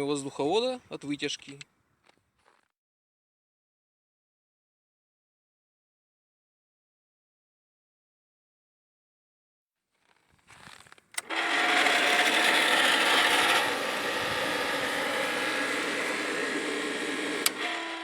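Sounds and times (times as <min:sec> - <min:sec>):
fan switch click: 0:11.2 - 0:17.6
electric fan whirring: 0:11.2 - 0:18.0.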